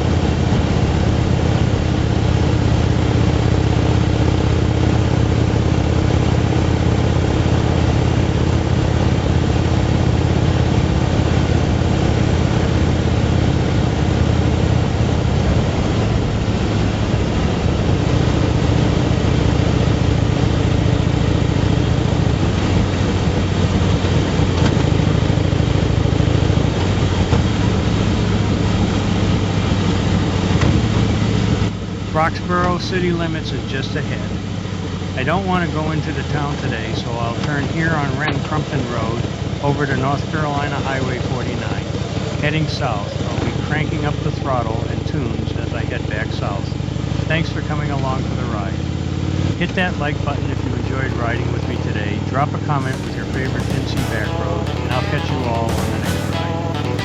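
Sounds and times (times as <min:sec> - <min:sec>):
motorcycle engine cruising: 0:00.0 - 0:32.8, 0:46.6 - 0:57.0.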